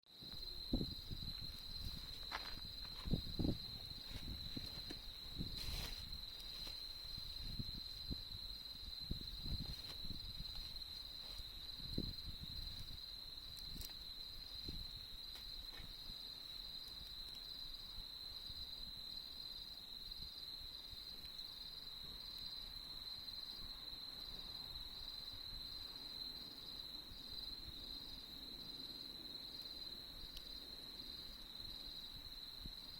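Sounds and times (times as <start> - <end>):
crickets trilling: 0.1 - 32.9
campfire crackling: 12.4 - 19.8, 29.6 - 30.6.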